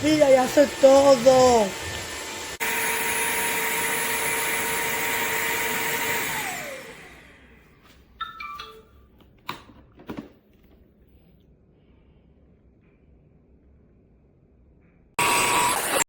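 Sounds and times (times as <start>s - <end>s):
vacuum motor whining: 0.0s - 7.6s, 15.2s - 16.0s.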